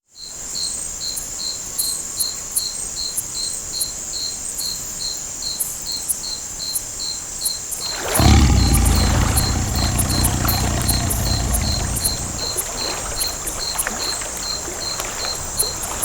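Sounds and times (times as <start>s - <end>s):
faint ticks: 8.2s - 12.6s
low rumble: 8.2s - 12.6s
crickets chirping: 8.2s - 15.9s.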